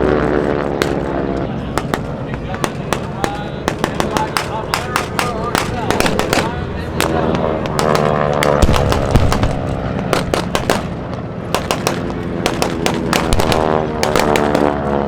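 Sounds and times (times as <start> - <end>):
gunfire and pyrotechnic bangs: 0.0 - 15.0
propeller plane engine passing: 0.0 - 15.0.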